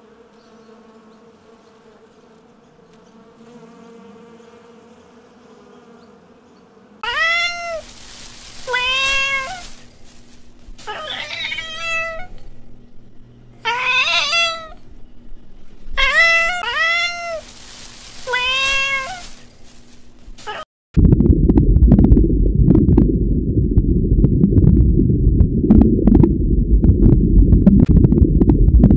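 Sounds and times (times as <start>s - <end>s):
honeybee buzzing: 0.0s - 11.1s
cat meowing: 7.0s - 7.8s, 8.7s - 9.7s, 10.9s - 12.3s, 13.6s - 14.8s, 16.0s - 17.4s, 18.3s - 19.3s.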